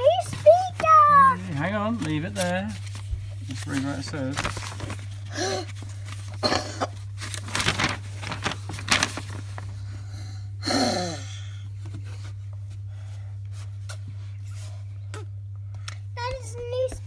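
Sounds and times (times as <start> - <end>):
steady low hum: 0.0 - 17.0
packaging crinkling and tearing: 2.0 - 9.7.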